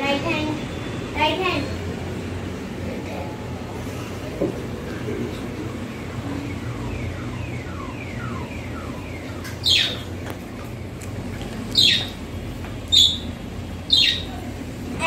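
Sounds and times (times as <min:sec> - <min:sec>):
birds chirping: 0:05.1 - 0:14.6.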